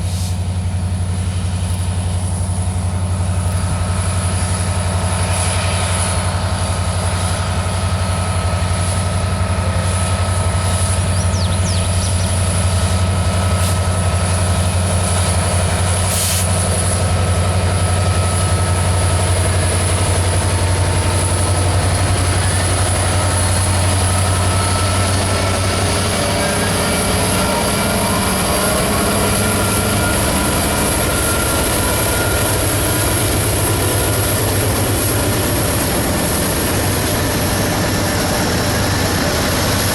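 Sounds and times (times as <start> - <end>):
diesel locomotive engine droning: 0.0 - 39.9.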